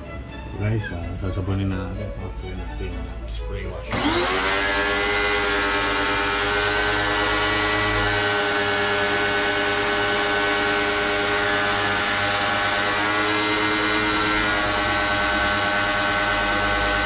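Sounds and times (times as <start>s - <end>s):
pressure washer motor running: 3.9s - 17.0s.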